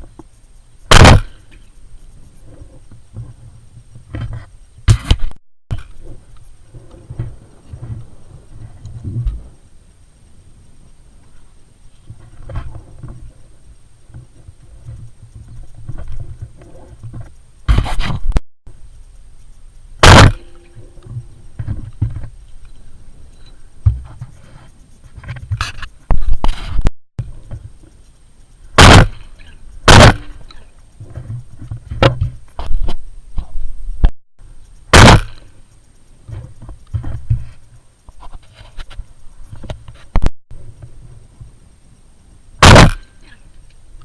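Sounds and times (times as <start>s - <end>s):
wind rumbling on microphone: 0.0s - 44.0s
gunshots: 0.9s - 1.4s, 20.0s - 20.7s, 28.8s - 30.4s, 34.9s - 35.5s, 42.6s - 43.1s.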